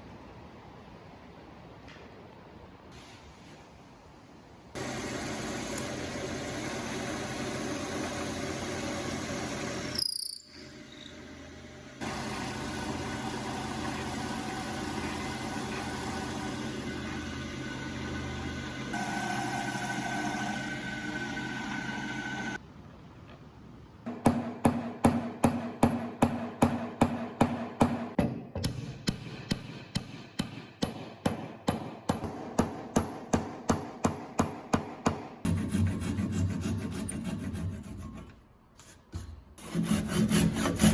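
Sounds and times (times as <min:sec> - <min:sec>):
noisy tool work: 0:04.8 - 0:22.6, 0:30.8 - 0:40.9
regular filing strokes: 0:35.5 - 0:40.9.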